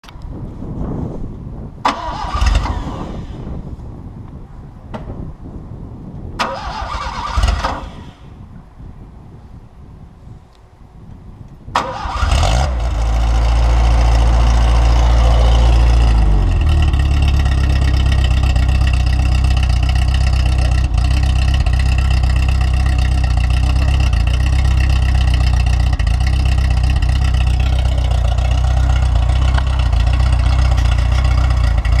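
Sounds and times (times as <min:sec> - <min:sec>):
car engine starting and idling: 0:01.8 - 0:03.6, 0:06.4 - 0:08.4, 0:11.7 - 0:32.0.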